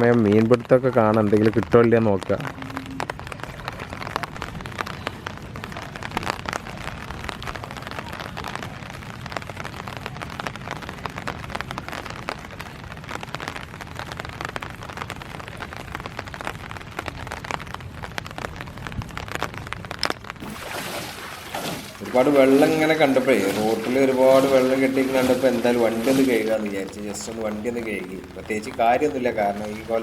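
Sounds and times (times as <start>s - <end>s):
heavy rain falling: 0.0s - 30.0s
sharp raindrop hits: 0.0s - 30.0s.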